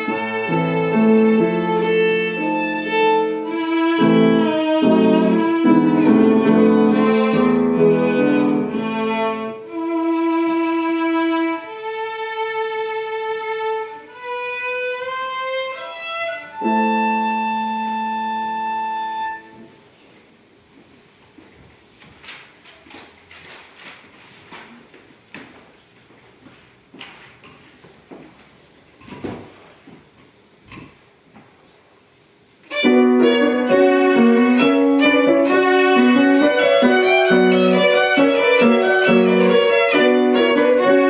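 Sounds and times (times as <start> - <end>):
violin and piano classical piece: 0.0 - 19.8, 32.6 - 41.0.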